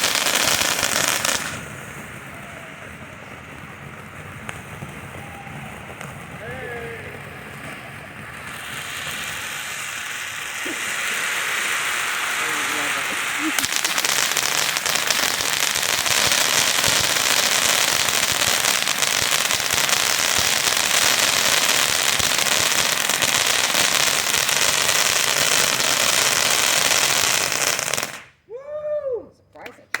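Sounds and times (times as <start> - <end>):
firework fountain hissing and crackling: 0.0 - 28.4
person calling out: 28.5 - 29.5.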